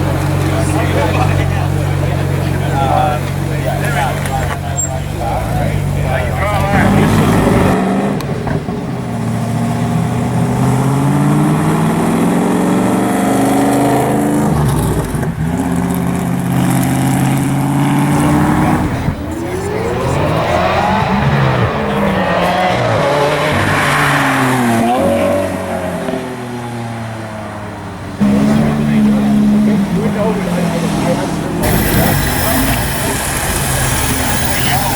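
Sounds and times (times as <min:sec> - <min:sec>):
sports car engines accelerating: 0:00.0 - 0:34.9.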